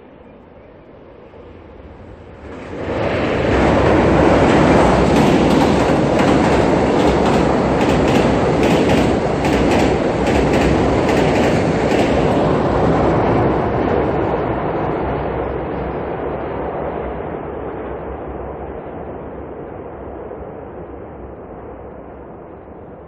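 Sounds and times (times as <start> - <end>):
train rumble on a bridge: 0.0 - 15.0
clickety-clack wheel beats: 4.3 - 12.8.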